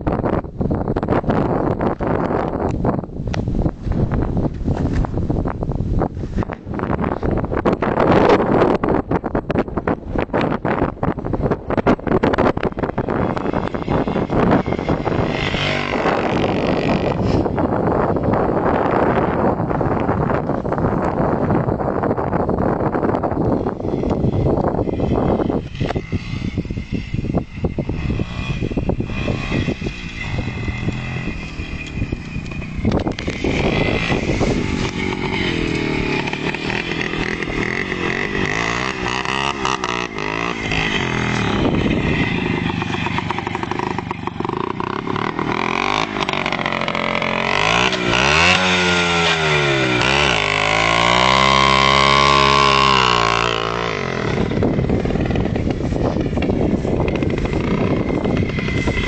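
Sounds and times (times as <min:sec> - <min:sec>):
two-stroke motorcycle engine revving: 0:11.5 - 0:21.2, 0:23.1 - 0:59.0.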